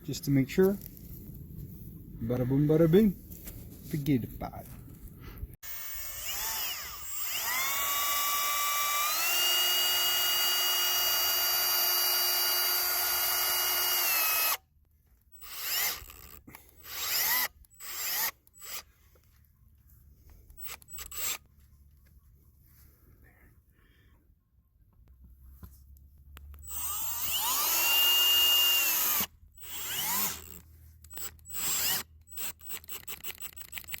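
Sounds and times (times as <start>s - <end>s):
power drill driving screws: 5.6s - 14.6s, 15.4s - 18.9s, 20.6s - 21.4s, 26.6s - 34.0s.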